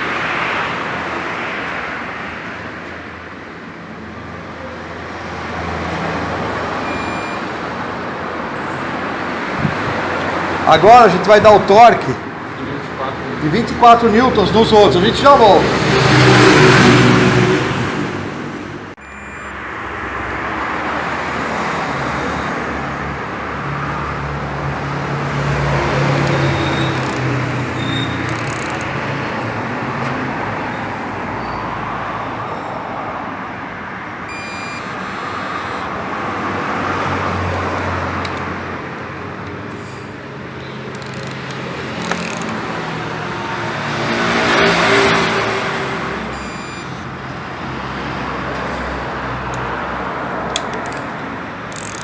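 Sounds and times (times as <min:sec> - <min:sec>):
sharp click: 0:40.9 - 0:42.7, 0:50.5 - 0:52.0.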